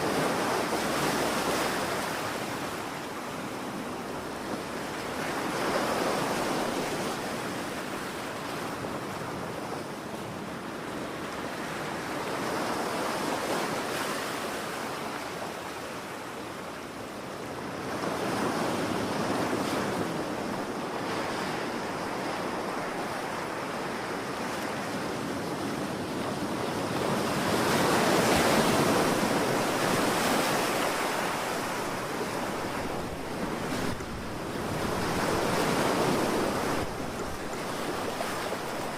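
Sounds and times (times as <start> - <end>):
ocean waves breaking: 17.6 - 38.9.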